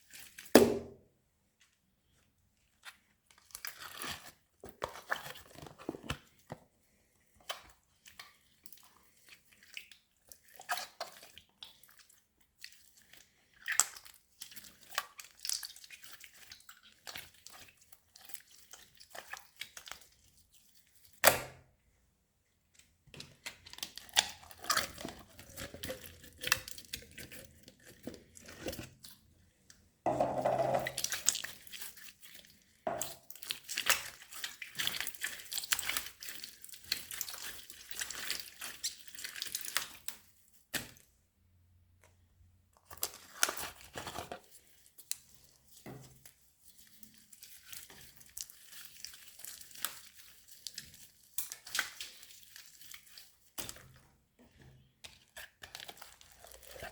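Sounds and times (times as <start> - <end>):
sharp loud slime pop: 0.5 - 1.0, 21.2 - 21.6
slime squishing by hand: 7.3 - 21.6, 22.6 - 41.2, 42.0 - 56.9.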